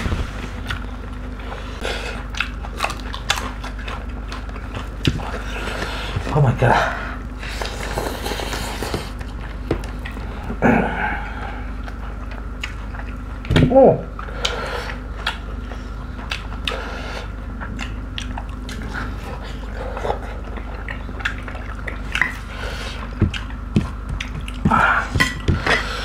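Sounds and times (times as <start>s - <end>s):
wet chewing and lip smacks: 2.2s - 5.4s, 11.8s - 13.4s, 17.5s - 24.6s.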